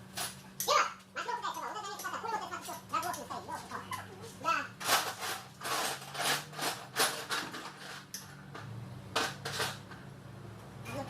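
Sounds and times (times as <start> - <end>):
tools scraping and rubbing: 4.8 - 8.2, 9.2 - 9.9.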